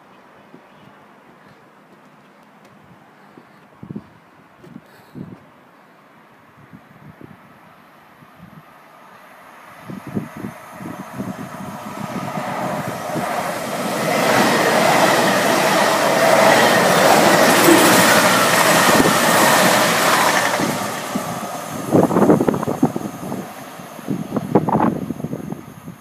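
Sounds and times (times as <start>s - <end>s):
train diesel engines: 8.6s - 26.0s
train wheels on rails: 9.1s - 25.6s.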